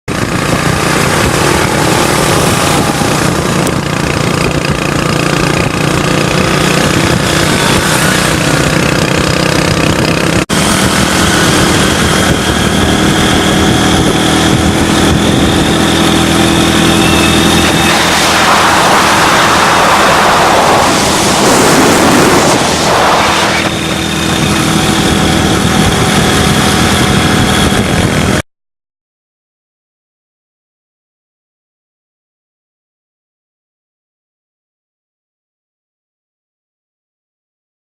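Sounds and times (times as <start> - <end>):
motorcycle engines running: 0.1 - 28.4
rushing noise: 0.1 - 28.4.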